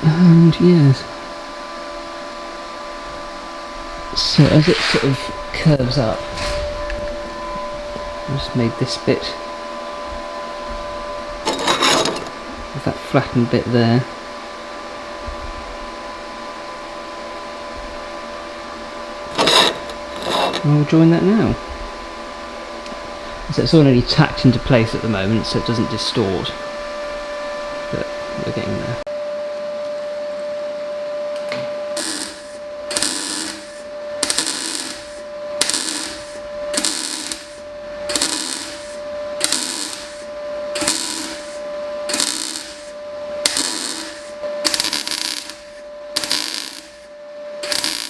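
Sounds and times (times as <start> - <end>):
fan-like machine hum: 0.0 - 48.0
welder crackling bursts: 4.1 - 7.2, 19.3 - 20.8, 31.9 - 48.0.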